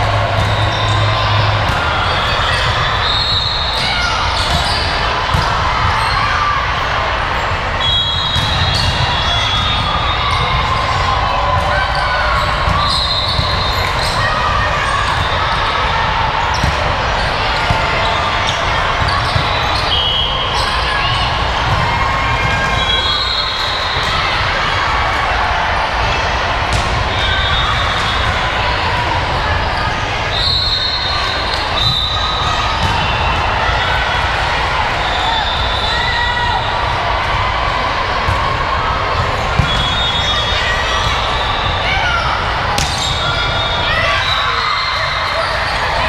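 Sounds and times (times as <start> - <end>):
volleyballs bouncing and struck: 0.0 - 3.0, 3.6 - 6.2, 16.5 - 20.2, 26.7 - 28.4, 38.2 - 40.2, 42.7 - 43.5
chatter in a large hall: 0.0 - 46.0
murmur of voices: 0.0 - 46.0.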